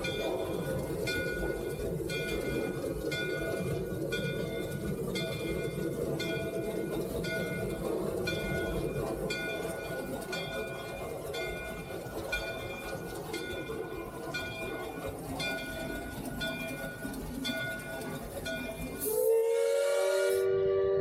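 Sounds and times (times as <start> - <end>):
steam locomotive rumble: 0.0 - 21.0.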